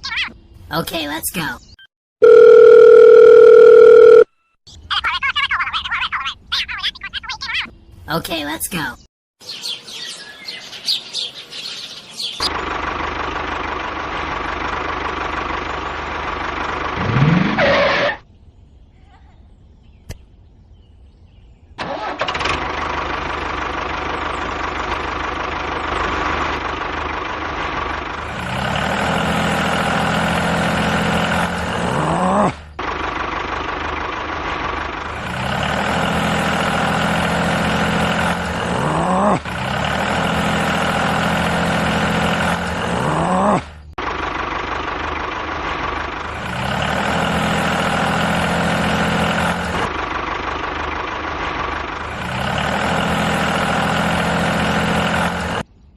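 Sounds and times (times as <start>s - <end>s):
engine running: 12.4s - 18.3s, 21.8s - 55.8s.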